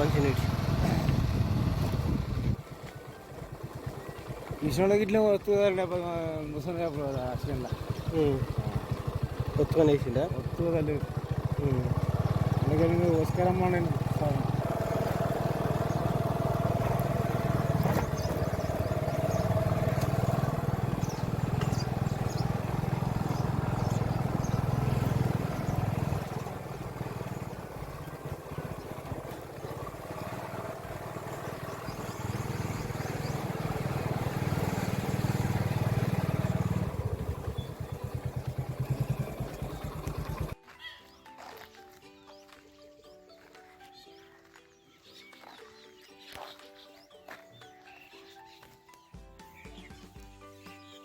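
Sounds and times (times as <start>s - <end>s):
engine running: 0.0s - 40.6s.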